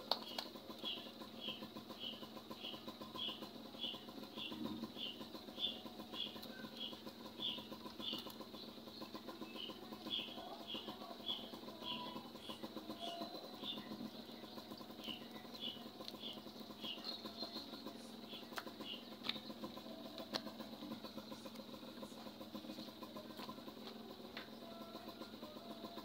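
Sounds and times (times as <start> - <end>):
motorcycle engine idling: 0.0 - 26.0
small bird chirping: 0.2 - 20.1.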